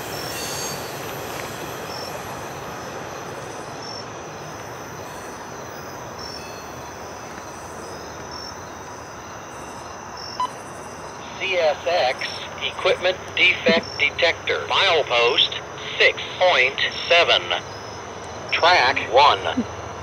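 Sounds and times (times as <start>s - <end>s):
freight train cars rolling: 0.0s - 10.3s
insects chirping: 0.0s - 20.0s.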